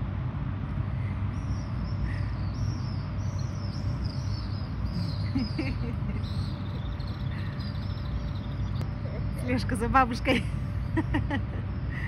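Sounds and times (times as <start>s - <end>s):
low outdoor rumble: 0.0s - 12.0s
small bird chirping: 1.0s - 9.3s.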